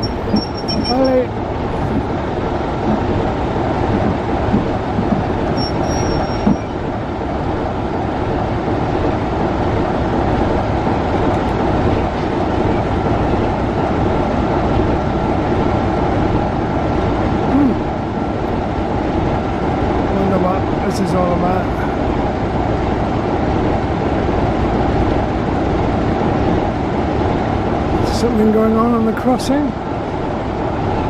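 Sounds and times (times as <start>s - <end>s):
wheel squeal: 0.0s - 2.1s, 4.0s - 6.8s
steel wheels rumbling on rails: 0.0s - 31.0s.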